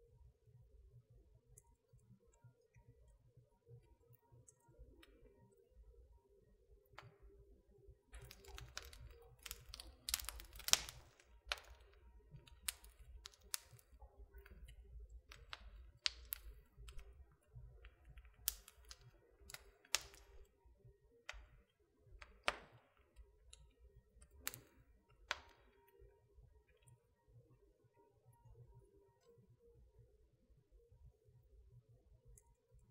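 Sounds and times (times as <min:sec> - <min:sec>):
wood fire crackling: 0:08.1 - 0:20.6, 0:21.3 - 0:26.0.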